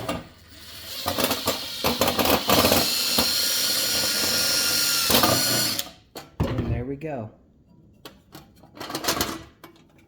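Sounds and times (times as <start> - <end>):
power drill whining: 0.4 - 6.0.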